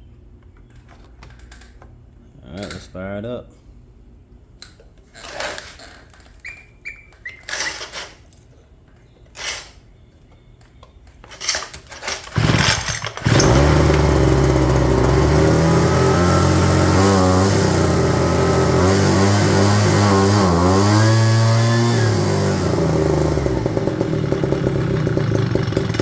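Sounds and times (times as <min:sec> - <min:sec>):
starter cord pulls: 0:11.1 - 0:26.0
leaf blower engine running: 0:12.2 - 0:26.0.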